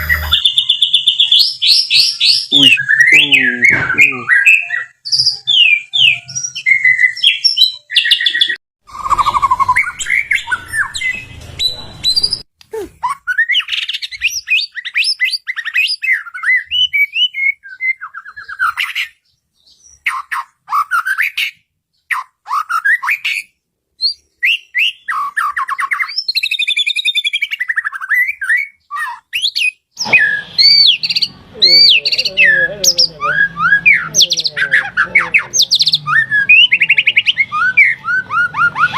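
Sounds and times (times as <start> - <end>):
songbird whistling and trilling: 0.0 - 38.9
bird harsh chattering: 8.0 - 11.2, 24.4 - 38.9.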